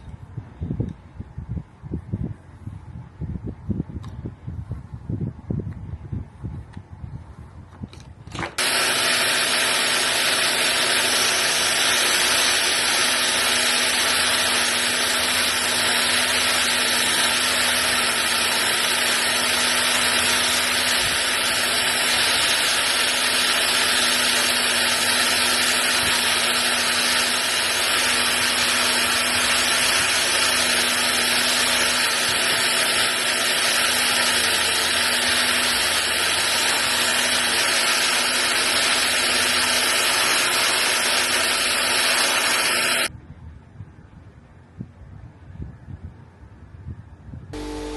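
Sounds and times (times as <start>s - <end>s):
electric power tool whirring: 8.0s - 43.1s, 47.6s - 47.9s.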